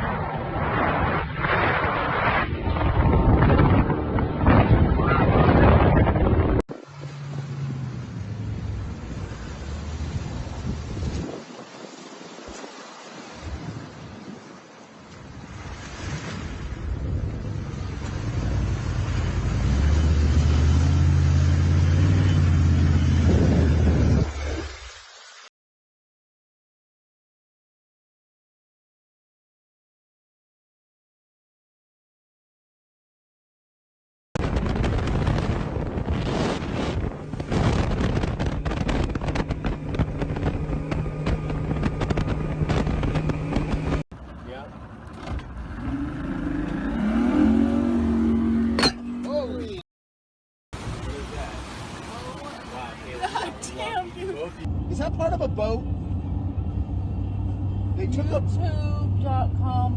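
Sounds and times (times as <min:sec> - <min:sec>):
wind buffeting microphone: 0:00.0 - 0:06.8, 0:07.5 - 0:12.5, 0:22.8 - 0:24.6, 0:34.4 - 0:44.0
motorboat engine running: 0:03.0 - 0:11.2, 0:34.4 - 0:46.9
engine humming: 0:06.0 - 0:11.0, 0:17.0 - 0:24.5, 0:37.1 - 0:49.8, 0:52.9 - 0:59.9.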